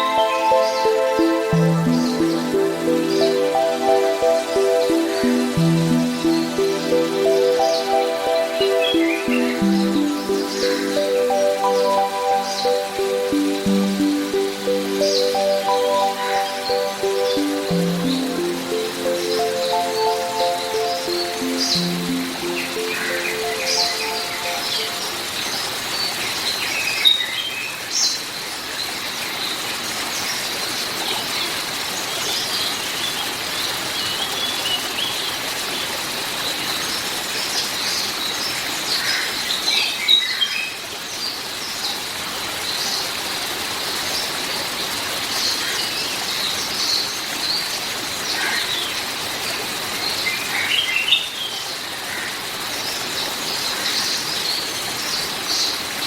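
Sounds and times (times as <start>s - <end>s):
songbirds chirping: 0.0s - 26.6s
rain hiss: 0.0s - 56.0s.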